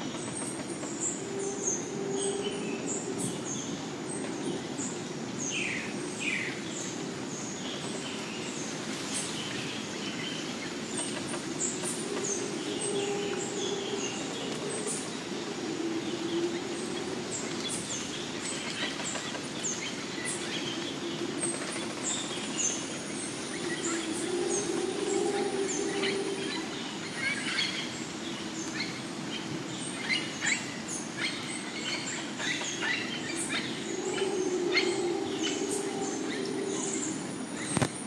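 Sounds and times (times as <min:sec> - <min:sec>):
low steady drone: 0:00.0 - 0:08.8, 0:09.6 - 0:38.0
birds chirping and calling: 0:10.4 - 0:38.0.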